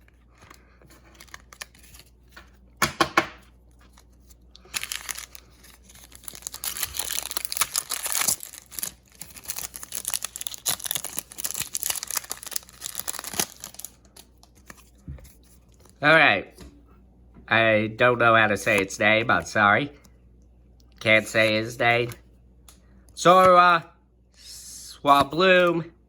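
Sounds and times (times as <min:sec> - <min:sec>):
foil wrapper tearing and crinkling: 0:01.0 - 0:02.3, 0:03.8 - 0:14.9.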